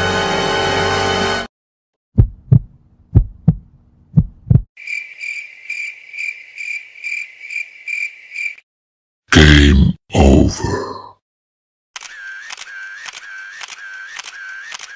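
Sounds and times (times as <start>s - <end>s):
heartbeat thumps: 2.1s - 4.7s
crickets chirping: 4.8s - 8.6s.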